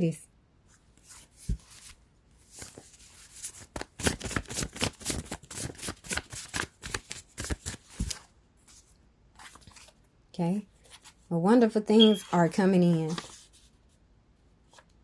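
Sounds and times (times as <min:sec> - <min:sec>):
cards being shuffled: 0:01.0 - 0:10.0, 0:12.8 - 0:13.7.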